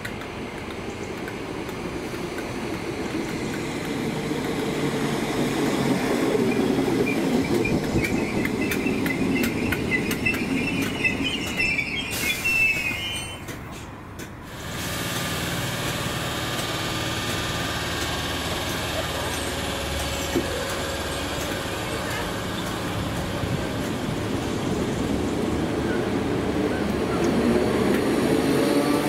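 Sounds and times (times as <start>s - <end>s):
rail-joint clicks: 0.0s - 14.4s, 15.1s - 24.2s
train wheels squealing on rails: 5.7s - 15.6s.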